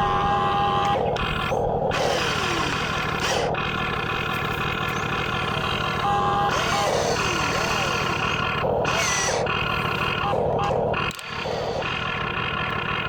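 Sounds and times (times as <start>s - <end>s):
steady rumbling din: 0.0s - 5.6s
small motors whining: 0.0s - 13.0s.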